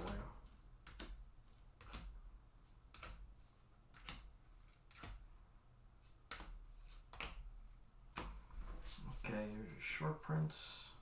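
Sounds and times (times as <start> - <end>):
cards clicking and tapping on table: 0.0 - 2.2, 2.9 - 3.3, 3.9 - 5.2, 6.2 - 7.5, 8.1 - 8.4.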